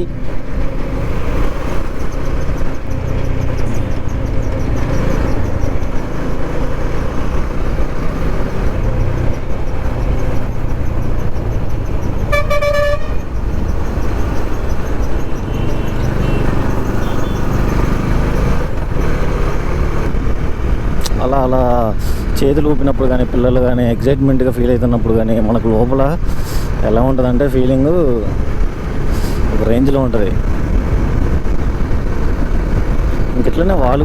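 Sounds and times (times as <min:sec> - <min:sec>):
wind and motorcycle road rumble: 0:00.0 - 0:34.0
vehicle horn blast: 0:12.3 - 0:13.3, 0:15.4 - 0:17.5.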